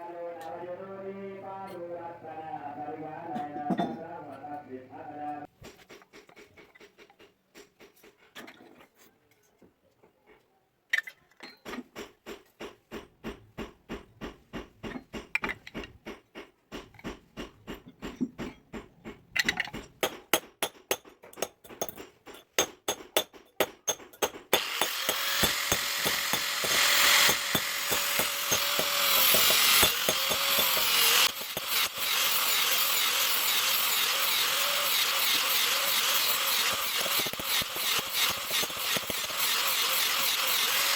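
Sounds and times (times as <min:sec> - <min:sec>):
rapid hand tool strokes: 0:20.0 - 0:40.9
power tool whine: 0:24.6 - 0:40.9.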